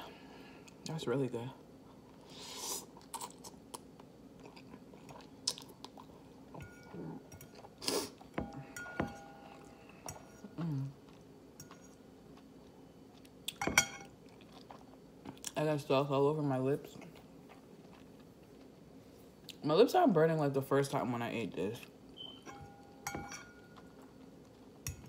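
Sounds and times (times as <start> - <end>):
fork clinking on ceramic bowl: 8.4 - 10.4, 22.5 - 23.9.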